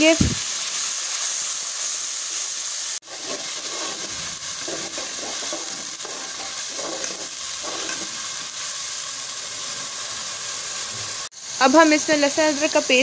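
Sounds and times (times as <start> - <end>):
onion paste sizzling in a pot: 0.0 - 13.0
steel spoon scraping metal pot: 3.0 - 8.4.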